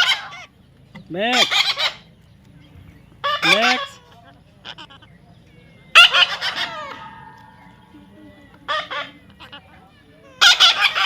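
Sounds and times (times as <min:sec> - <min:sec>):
parrot squawking: 0:00.0 - 0:00.5, 0:01.3 - 0:02.0, 0:03.2 - 0:05.2, 0:05.9 - 0:11.0.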